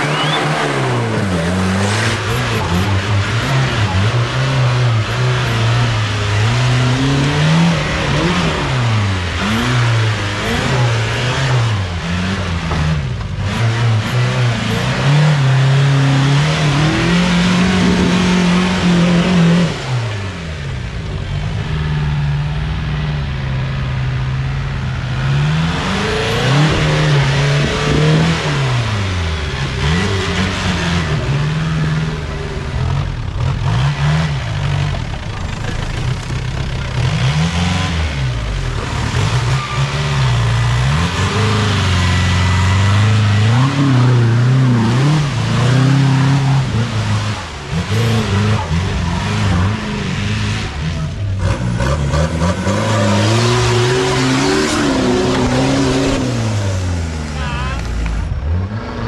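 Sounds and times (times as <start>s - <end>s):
off-road vehicle engine revving: 0.0s - 59.0s.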